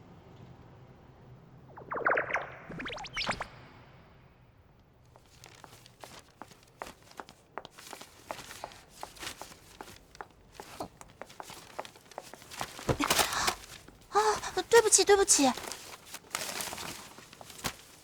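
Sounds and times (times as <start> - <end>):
footsteps on a hard floor: 5.2 - 14.0
rustling scuff: 5.2 - 18.0.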